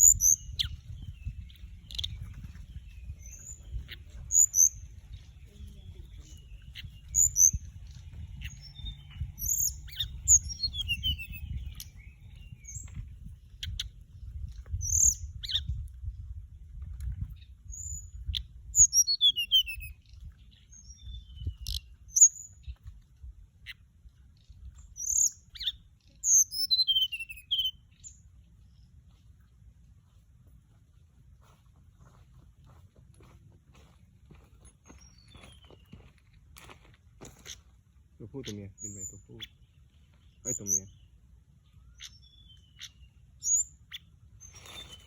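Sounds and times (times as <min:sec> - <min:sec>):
bird singing high thin chirps: 0:00.0 - 0:16.2, 0:17.2 - 0:22.9, 0:24.4 - 0:28.2, 0:34.8 - 0:36.2, 0:38.2 - 0:45.0.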